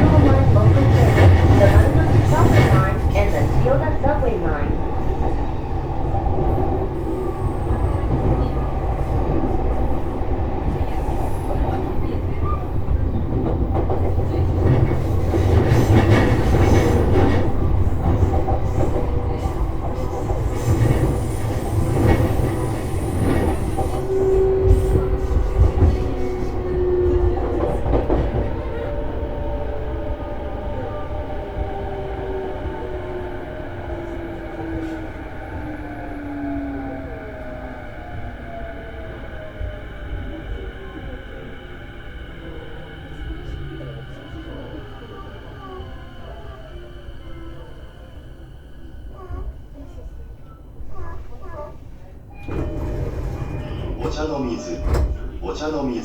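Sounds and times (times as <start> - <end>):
wheels rumbling on rail: 0.0 - 55.7
rail-joint clicks: 52.4 - 55.4.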